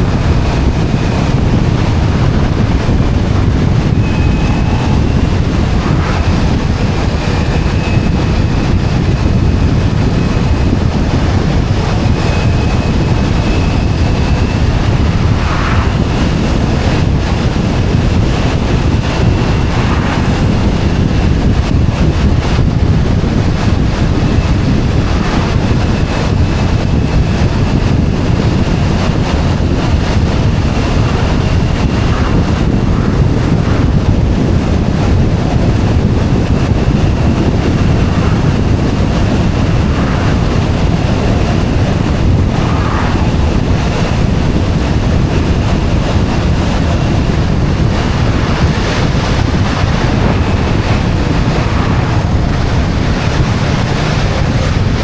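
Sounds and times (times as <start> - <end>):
faint high whine: 0.0 - 55.0
motorcycle engine: 0.0 - 55.0
road noise: 0.0 - 55.0
wind rushing over microphone: 0.0 - 55.0.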